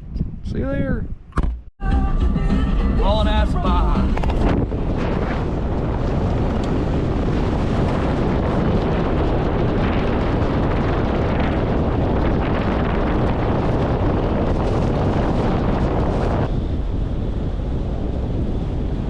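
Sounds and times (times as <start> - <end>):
wind rumbling on microphone: 0.0 - 1.6, 2.7 - 19.0.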